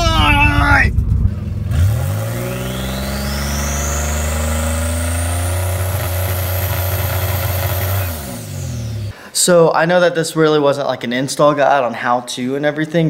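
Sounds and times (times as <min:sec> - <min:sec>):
high whine rising in pitch: 0:00.0 - 0:09.1
car engine revving on limiter: 0:00.0 - 0:09.2.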